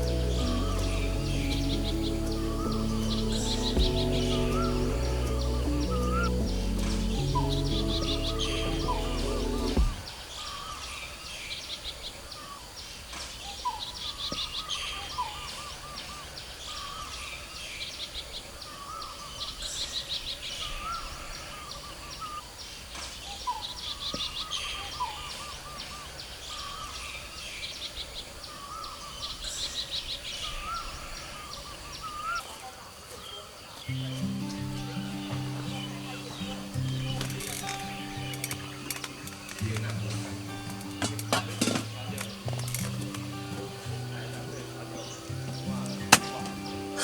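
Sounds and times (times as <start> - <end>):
birds whistling and trilling: 0.0 - 32.5, 33.2 - 47.0
steady background hiss: 0.0 - 47.0.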